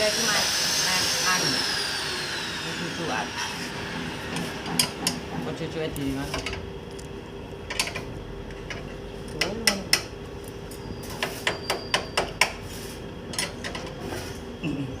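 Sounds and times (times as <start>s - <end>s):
sharp clicks and knocks: 4.3s - 5.4s, 6.4s - 10.1s.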